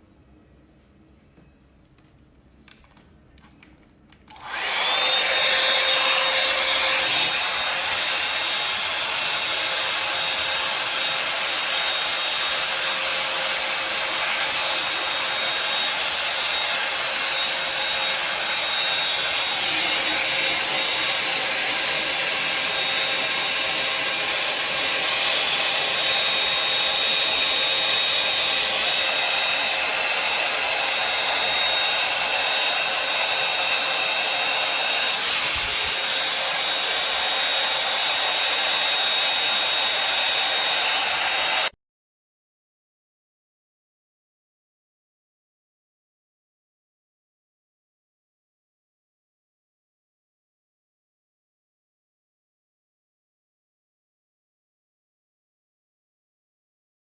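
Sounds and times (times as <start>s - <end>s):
hot air brush blowing: 4.4s - 41.7s.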